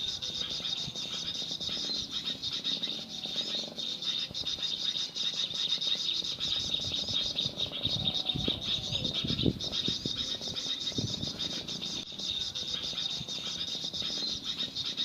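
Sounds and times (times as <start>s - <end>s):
birds and insects chirping: 0.0s - 15.0s.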